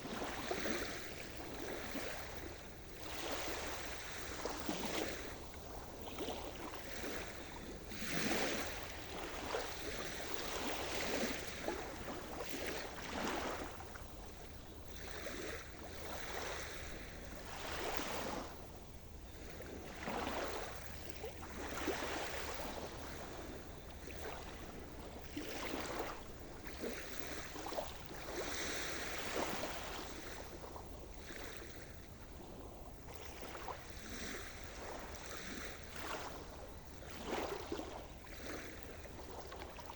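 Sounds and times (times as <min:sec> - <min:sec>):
waves breaking on shore: 0:00.0 - 0:39.9.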